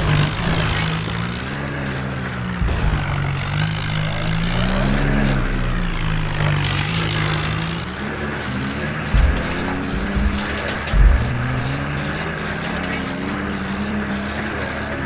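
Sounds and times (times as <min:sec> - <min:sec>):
mini tractor motor running: 0:00.0 - 0:15.0
low thumps: 0:02.5 - 0:12.5.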